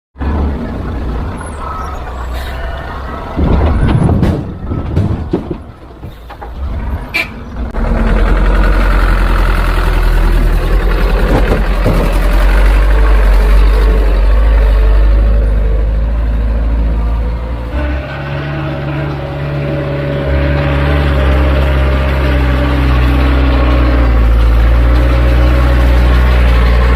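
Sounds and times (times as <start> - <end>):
diesel engine drone: 0.2 - 26.9
machinery knocks and clatter: 3.3 - 6.8, 7.7 - 14.7.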